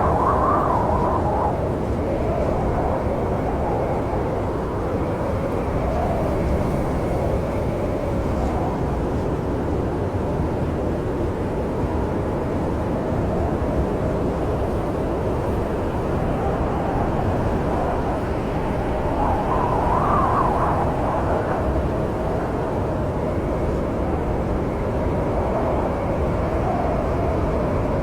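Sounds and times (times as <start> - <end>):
howling storm wind: 0.0 - 28.0.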